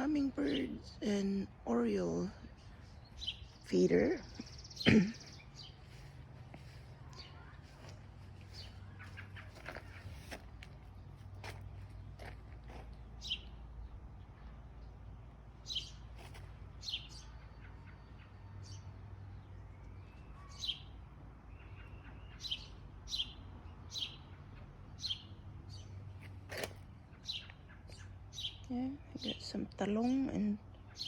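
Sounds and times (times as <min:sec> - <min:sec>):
songbird chirping: 0:00.0 - 0:31.0.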